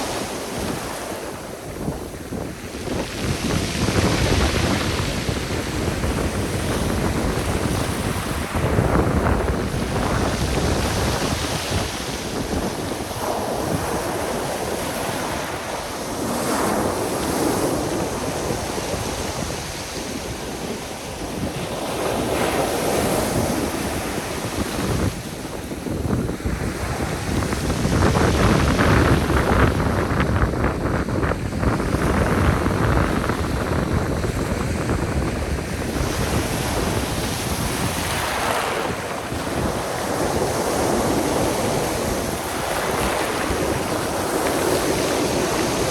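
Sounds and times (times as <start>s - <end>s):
surf breaking on shore: 0.0s - 45.9s
wind buffeting microphone: 0.0s - 45.9s.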